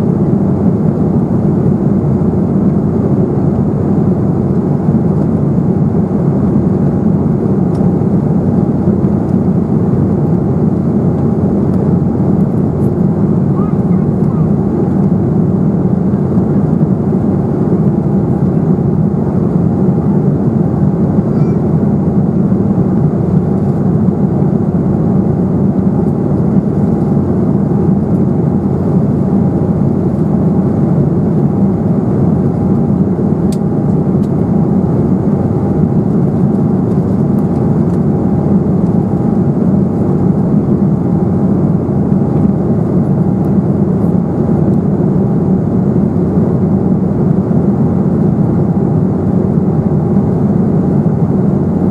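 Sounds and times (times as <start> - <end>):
airliner cabin roar: 0.0 - 51.9.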